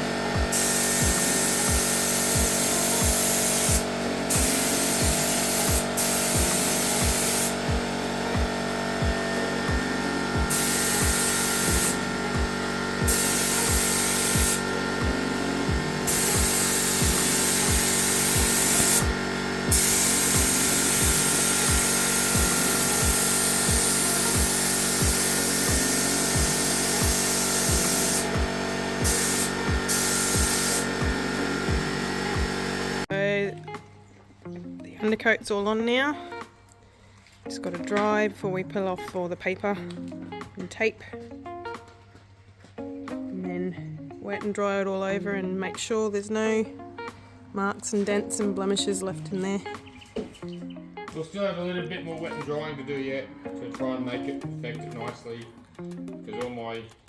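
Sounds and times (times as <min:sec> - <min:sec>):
paint spray gun hissing: 0:00.0 - 0:33.1
background music with beat: 0:00.0 - 0:35.2.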